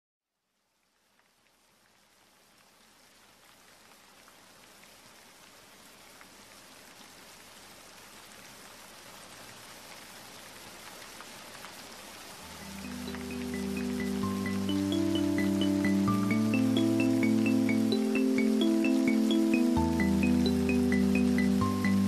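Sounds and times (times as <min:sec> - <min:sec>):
rain falling: 0:00.5 - 0:22.0.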